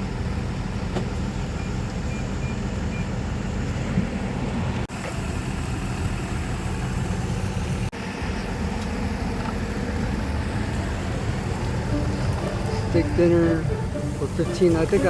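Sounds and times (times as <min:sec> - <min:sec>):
motor idling hum: 0:00.0 - 0:15.0.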